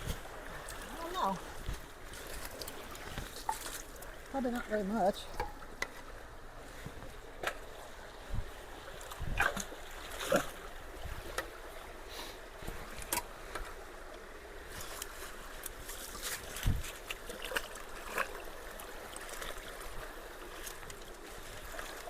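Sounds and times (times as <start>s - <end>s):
splashes and knocks of debris: 0.0s - 6.1s, 9.0s - 10.7s
creek water running into culvert: 0.0s - 22.0s.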